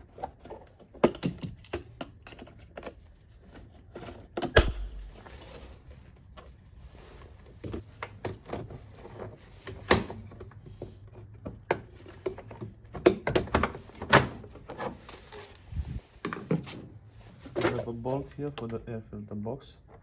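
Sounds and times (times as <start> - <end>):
tools and parts clicking and knocking: 0.0 - 5.6, 7.6 - 15.4.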